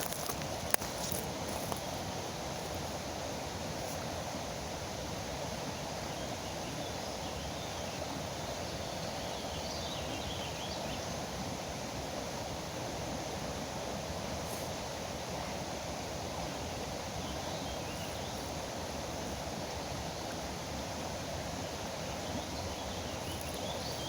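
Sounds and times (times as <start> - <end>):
river running: 0.0 - 24.0
faint bird chirps: 22.1 - 24.0.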